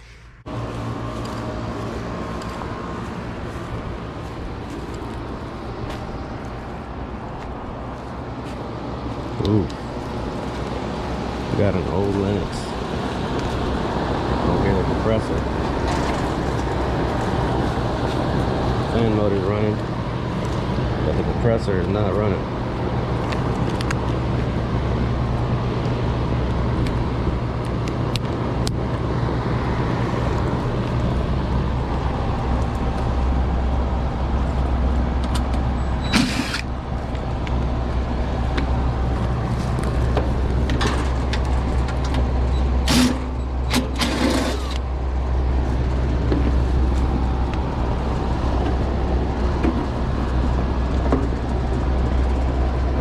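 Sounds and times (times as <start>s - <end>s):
condenser fan motor humming: 0.1s - 53.0s.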